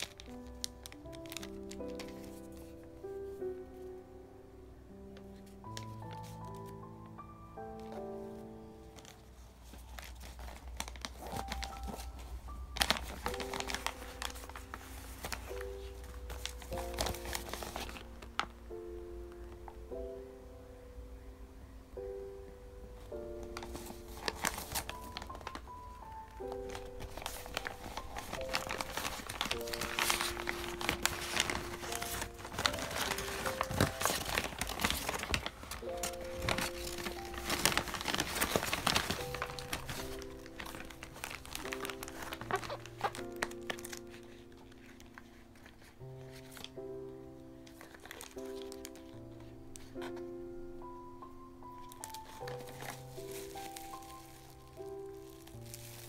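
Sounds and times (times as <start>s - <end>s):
gift wrapping crinkling: 0.0s - 3.8s, 5.1s - 20.3s, 23.0s - 56.0s
soft background music: 0.0s - 56.0s.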